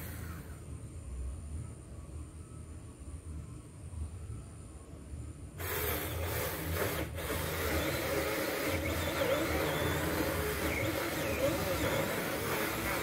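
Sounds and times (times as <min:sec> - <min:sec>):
mini chainsaw cutting wood: 0:05.6 - 0:13.0.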